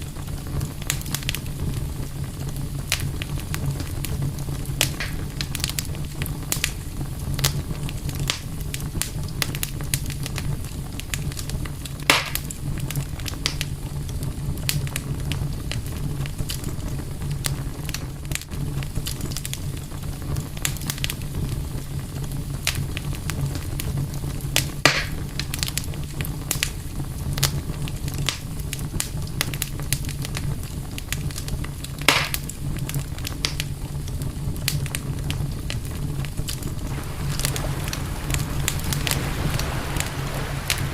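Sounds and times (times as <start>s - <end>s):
campfire crackling: 0.0s - 40.9s
low rumble: 36.8s - 40.9s
wood popping: 36.8s - 40.9s.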